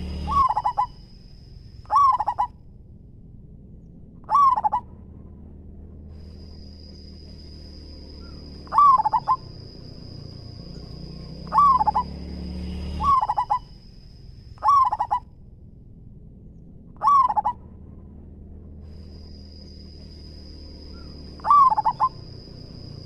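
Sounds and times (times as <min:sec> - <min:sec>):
dove cooing: 0:00.0 - 0:01.1, 0:01.9 - 0:02.5, 0:04.2 - 0:04.9, 0:08.2 - 0:09.7, 0:11.4 - 0:12.2, 0:13.0 - 0:13.8, 0:14.6 - 0:15.2, 0:17.0 - 0:17.6, 0:20.9 - 0:23.0.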